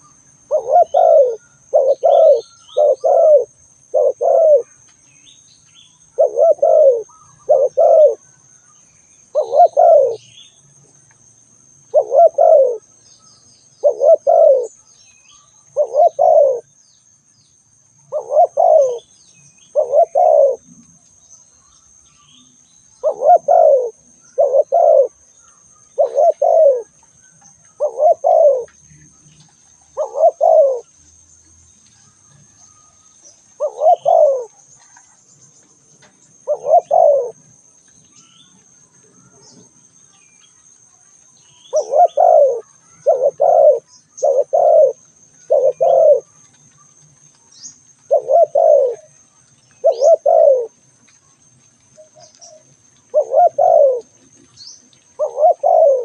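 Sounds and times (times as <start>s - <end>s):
dove cooing: 0.0s - 4.8s, 6.0s - 8.4s, 9.3s - 10.4s, 11.8s - 13.0s, 13.8s - 14.9s, 15.6s - 16.8s, 18.1s - 20.9s, 23.0s - 28.8s, 29.9s - 30.9s, 32.8s - 35.2s, 36.3s - 37.6s, 41.7s - 46.5s, 48.0s - 50.8s, 52.0s - 56.0s.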